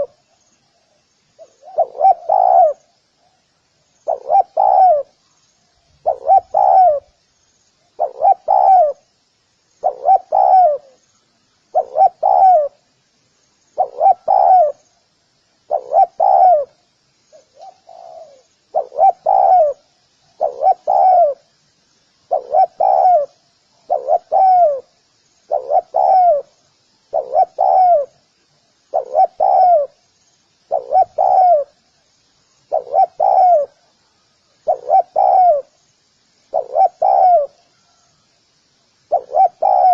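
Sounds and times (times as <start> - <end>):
dove cooing: 0.0 - 0.2, 1.4 - 2.9, 4.0 - 5.2, 6.0 - 7.2, 7.9 - 9.1, 9.8 - 11.0, 11.7 - 12.8, 13.8 - 14.8, 15.7 - 21.5, 22.3 - 24.9, 25.5 - 28.2, 28.9 - 30.0, 30.7 - 31.8, 32.7 - 33.9, 34.6 - 35.8, 36.5 - 38.0, 39.1 - 39.9
faint high chirping: 0.0 - 39.9.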